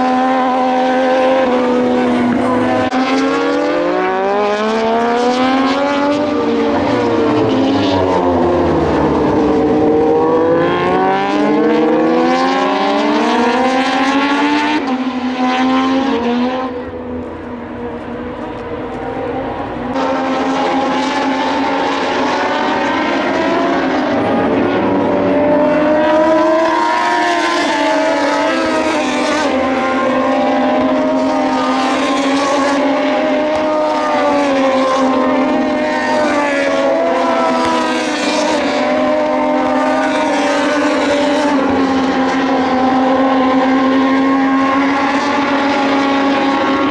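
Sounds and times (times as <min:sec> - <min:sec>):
racing motorcycles passing: 0:00.0 - 0:46.9.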